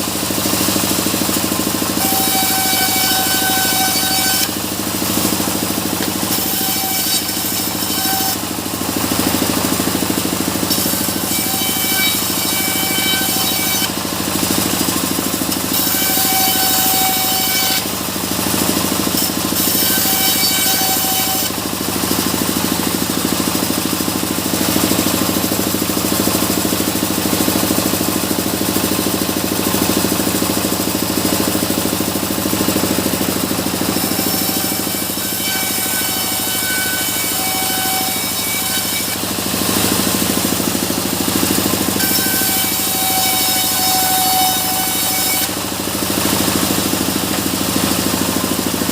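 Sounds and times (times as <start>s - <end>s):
sawmill saw cutting wood: 0.0s - 48.9s.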